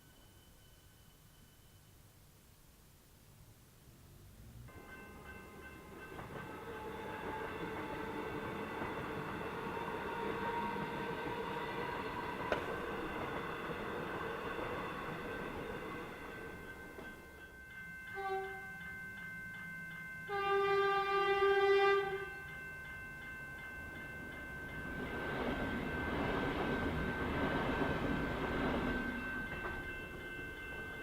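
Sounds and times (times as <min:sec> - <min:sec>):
train rumbling past: 0:03.9 - 0:31.0
train horn: 0:06.5 - 0:12.7, 0:18.1 - 0:18.8, 0:20.3 - 0:22.4
level crossing bells ringing: 0:21.9 - 0:31.0.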